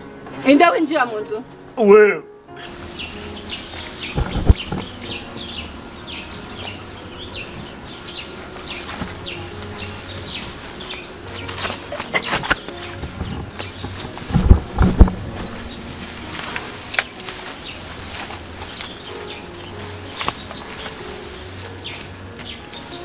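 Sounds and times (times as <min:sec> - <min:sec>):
birds chirping: 0:00.0 - 0:23.0
thumps and rustles: 0:04.1 - 0:05.2, 0:11.4 - 0:19.0.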